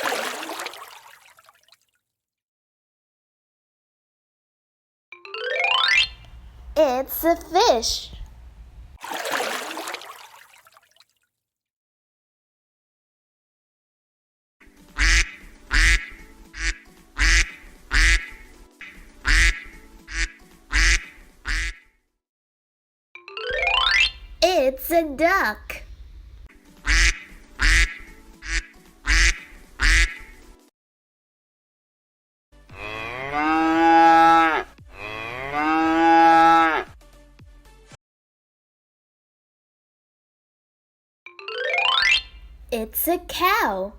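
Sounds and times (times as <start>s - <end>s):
duck quacking: 15.0s - 21.8s, 26.8s - 30.4s
cow mooing: 32.7s - 36.9s.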